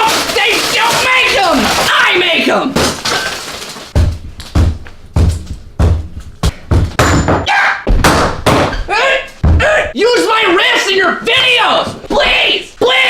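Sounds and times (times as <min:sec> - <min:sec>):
heavy thuds: 0:03.9 - 0:09.9.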